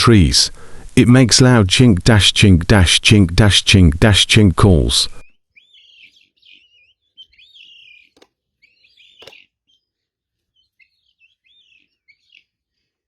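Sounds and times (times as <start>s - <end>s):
faint bird chirping: 5.1s - 13.0s.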